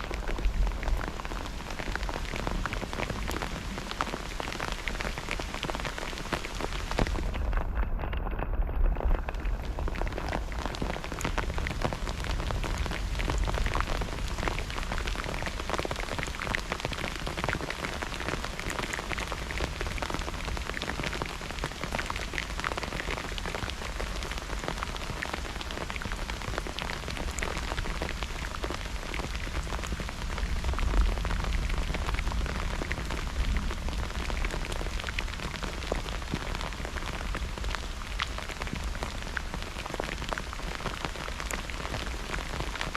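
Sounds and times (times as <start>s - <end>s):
heavy rain hissing: 0.0s - 7.6s.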